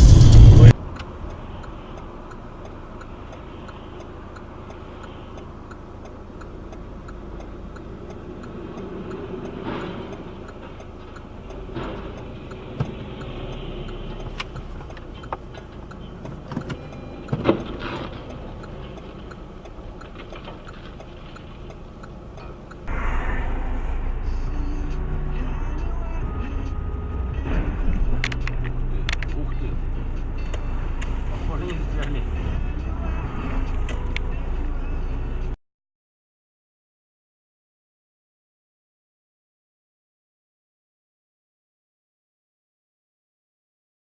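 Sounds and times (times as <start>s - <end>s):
engine and road hum: 0.0s - 35.6s
car indicator ticking: 0.8s - 22.9s, 28.0s - 34.9s.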